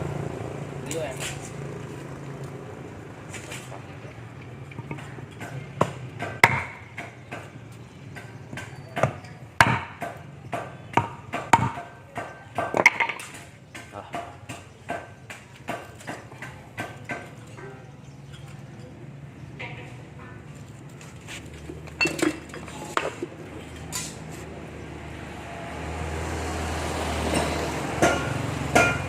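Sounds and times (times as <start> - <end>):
tools knocking and tapping: 4.4 - 7.5, 8.1 - 17.8, 27.3 - 29.0.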